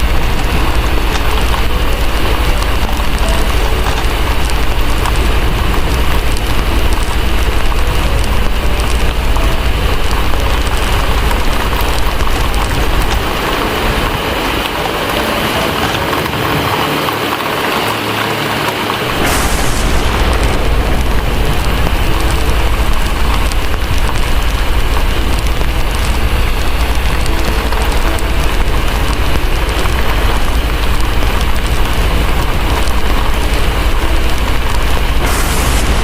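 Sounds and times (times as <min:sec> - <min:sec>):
deep low rumble: 0:00.0 - 0:17.7, 0:18.6 - 0:36.0
fire crackling: 0:00.0 - 0:36.0
heavy rain: 0:00.0 - 0:36.0.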